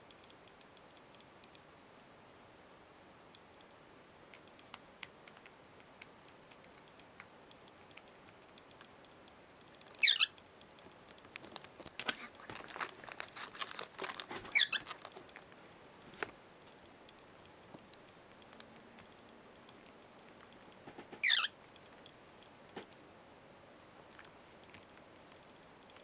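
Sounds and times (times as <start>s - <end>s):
cockatiel chirps: 10.0s - 10.4s, 14.5s - 14.9s, 21.2s - 21.6s.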